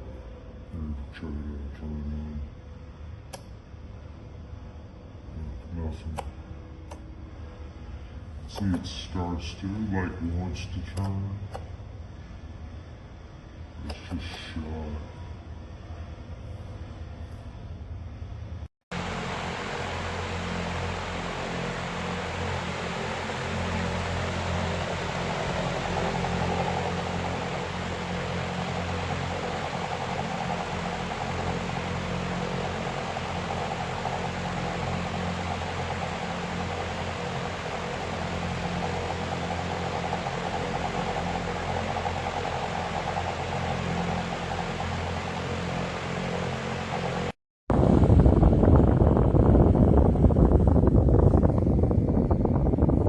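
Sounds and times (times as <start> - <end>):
electric fan whirring: 0.0 - 53.0
rush of air: 18.9 - 53.0.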